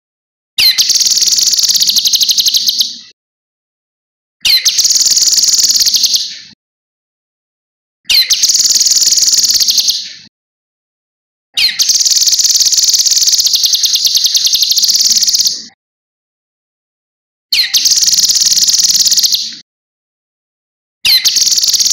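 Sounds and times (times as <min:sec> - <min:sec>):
songbird trilling: 0:00.6 - 0:02.9, 0:04.4 - 0:06.3, 0:08.1 - 0:10.0, 0:11.6 - 0:15.7, 0:17.6 - 0:19.5, 0:21.1 - 0:21.9.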